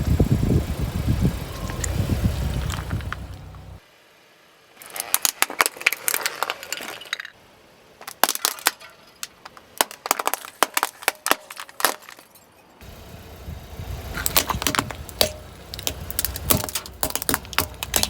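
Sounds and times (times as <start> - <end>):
low car rumble: 0.0 - 3.9, 12.7 - 18.0
brittle objects being crushed: 4.8 - 7.4, 14.2 - 18.0.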